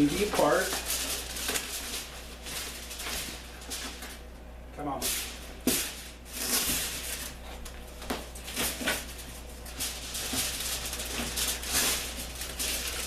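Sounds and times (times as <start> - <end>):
aluminium foil crinkling and tearing: 0.0 - 4.2, 5.0 - 13.0.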